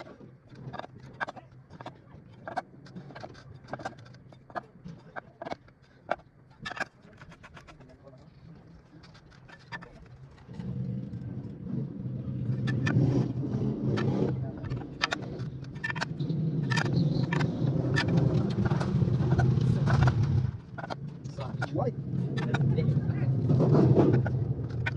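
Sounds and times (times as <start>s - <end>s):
scattered clicks and knocks: 0.0s - 10.8s, 12.5s - 24.9s
motorcycle engine running: 10.4s - 24.9s.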